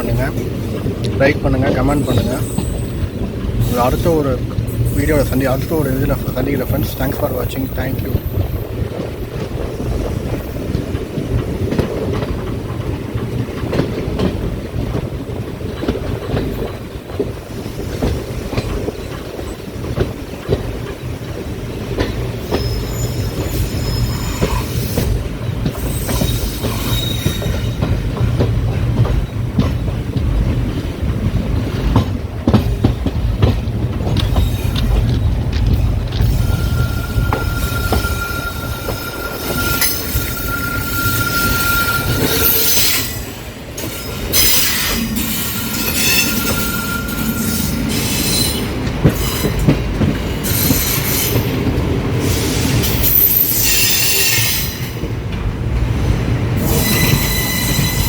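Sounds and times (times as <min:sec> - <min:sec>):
train rumbling on rails: 0:00.0 - 0:58.0
high-pitched wheel squeals: 0:36.2 - 0:43.2, 0:45.8 - 0:49.6, 0:56.6 - 0:58.0.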